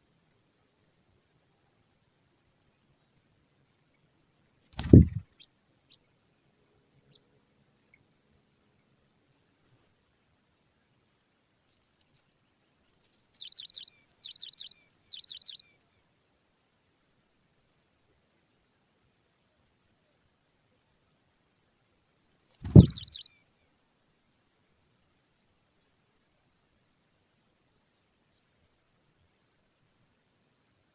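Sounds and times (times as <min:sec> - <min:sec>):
loud low thump: 0:04.8 - 0:05.2, 0:22.6 - 0:23.2
faint high ticking chirps: 0:11.7 - 0:18.8, 0:19.4 - 0:30.9
nestlings shrill begging calls: 0:22.6 - 0:23.3.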